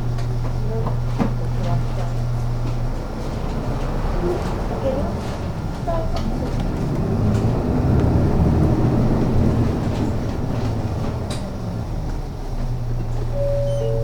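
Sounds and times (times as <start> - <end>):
bus engine and road rumble: 0.0 - 14.0
steady high tone: 13.3 - 14.0.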